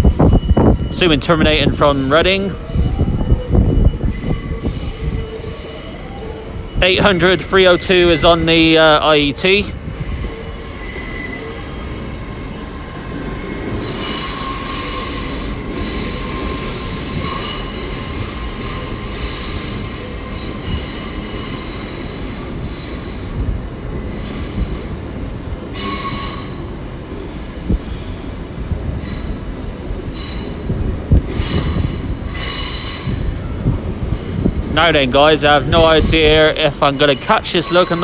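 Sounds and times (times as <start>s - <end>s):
train wheels rumbling on tracks: 0.0s - 38.0s
rail joint clicks: 0.1s - 6.5s
metallic wheel squeal: 35.7s - 38.0s.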